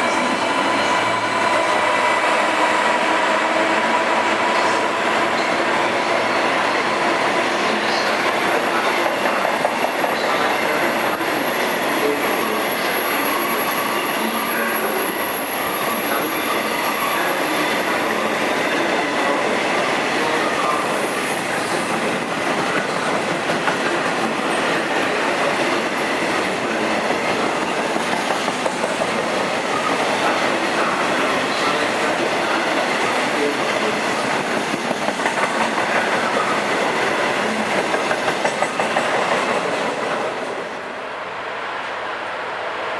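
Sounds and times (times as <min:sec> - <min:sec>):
train wheels clickety-clack: 0:04.2 - 0:12.4, 0:16.3 - 0:40.4.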